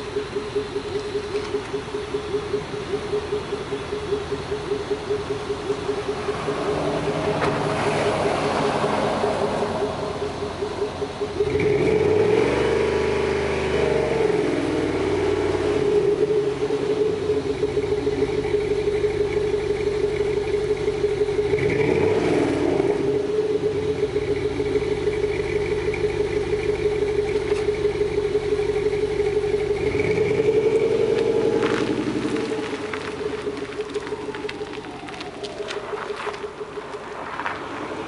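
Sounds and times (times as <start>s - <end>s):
car engine idling: 0.0s - 38.0s
engine revving: 0.0s - 38.0s.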